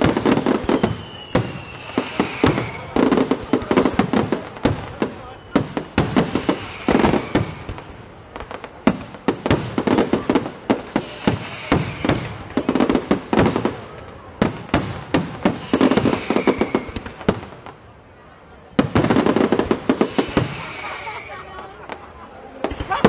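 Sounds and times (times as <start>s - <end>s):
fireworks bangs and crackling pops: 0.0s - 18.0s, 18.6s - 23.0s.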